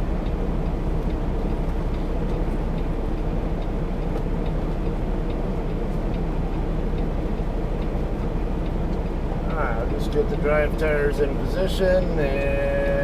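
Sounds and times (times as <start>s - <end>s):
truck diesel engine idling low: 0.0s - 13.0s
faint ticks: 0.2s - 10.2s.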